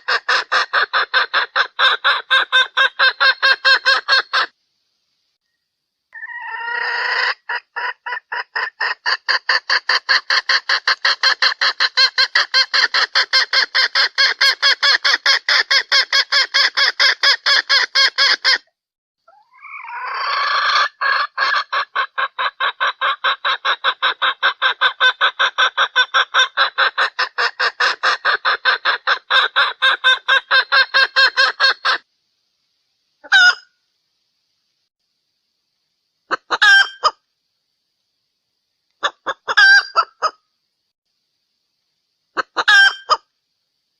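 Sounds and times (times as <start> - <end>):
hen clucking: 0.0 - 4.5, 6.1 - 18.6, 19.3 - 32.1, 33.2 - 33.7, 36.3 - 37.2, 39.0 - 40.4, 42.4 - 43.3.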